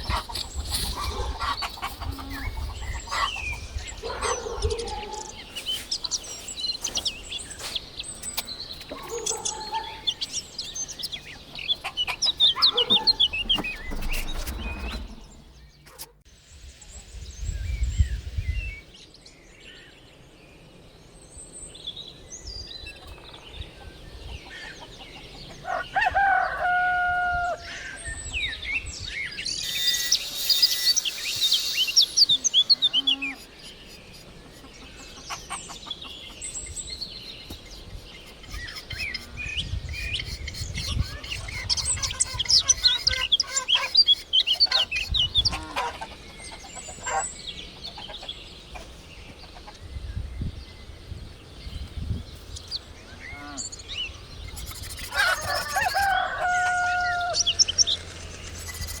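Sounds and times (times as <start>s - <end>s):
chickens calling: 0.0s - 16.2s, 23.8s - 28.1s, 29.3s - 36.8s, 37.5s - 49.9s, 52.7s - 59.0s
small birds chirping: 0.0s - 25.8s, 27.8s - 59.0s.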